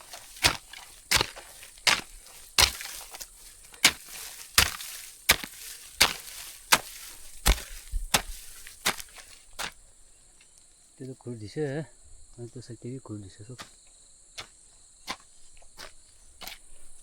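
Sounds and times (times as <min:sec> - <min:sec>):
sharp chopping blows: 0:00.0 - 0:09.8.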